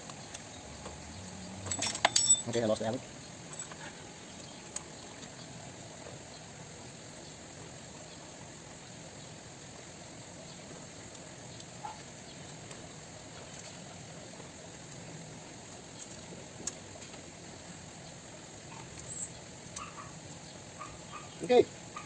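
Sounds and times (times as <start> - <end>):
low background hiss: 0.0 - 22.0.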